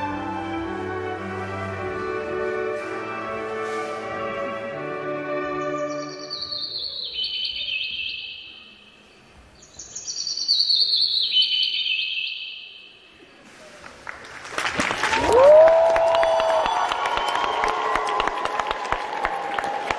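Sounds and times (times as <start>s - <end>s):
birdsong chirping: 5.5s - 13.2s.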